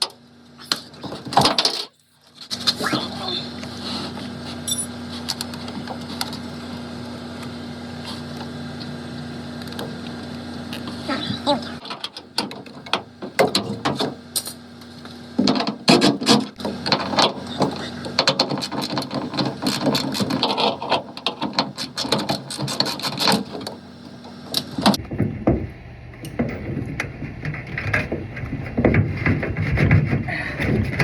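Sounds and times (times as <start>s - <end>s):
clicks and rattles of parts handled: 0.7s - 2.8s.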